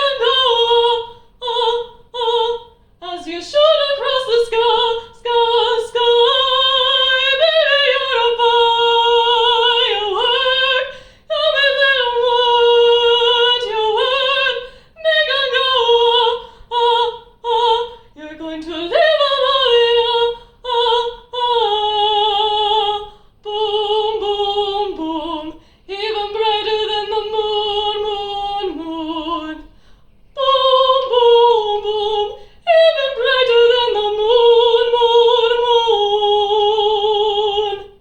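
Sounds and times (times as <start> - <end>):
woman singing operatically: 0.0 - 29.7, 30.3 - 38.0
singer breathing: 10.9 - 11.3, 14.6 - 15.0, 16.4 - 16.7, 25.5 - 25.9, 29.6 - 30.3, 32.4 - 32.7.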